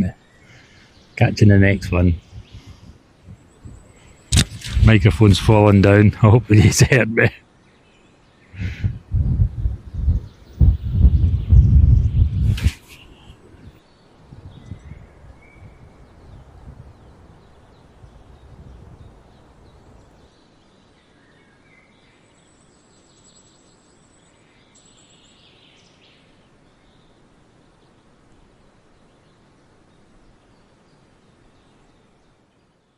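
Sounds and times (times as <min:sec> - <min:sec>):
small birds chirping: 0:00.0 - 0:32.9
low rumble: 0:08.6 - 0:12.8.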